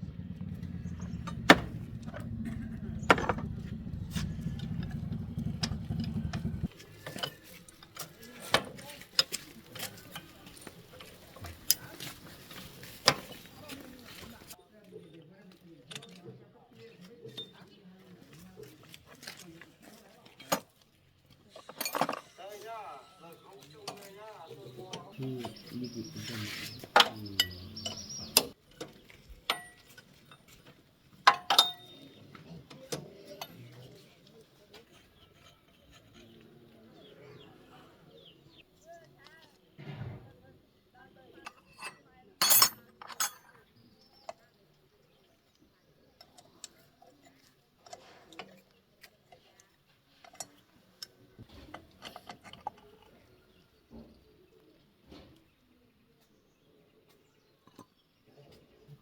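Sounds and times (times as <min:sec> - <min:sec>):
metal tools knocking and clinking: 0:21.6 - 0:22.6, 0:29.5 - 0:30.6, 0:31.2 - 0:32.1, 0:41.5 - 0:43.6.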